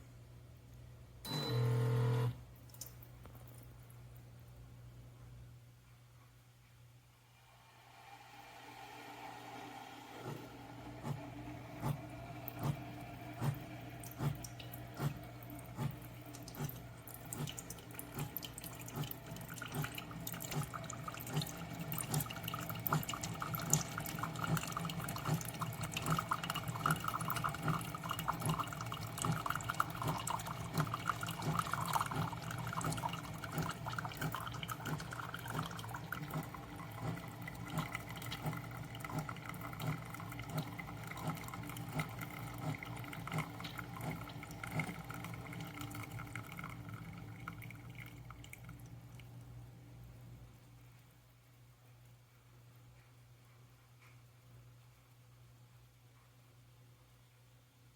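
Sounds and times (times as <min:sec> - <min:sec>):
coffee maker humming: 0:01.3 - 0:02.5, 0:07.4 - 0:49.3
coffee dripping into cup: 0:12.4 - 0:49.4.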